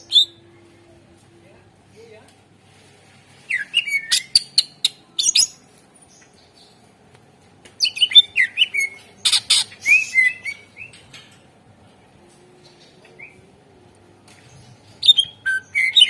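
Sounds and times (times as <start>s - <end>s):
bird singing slurred whistles: 15.0s - 16.0s.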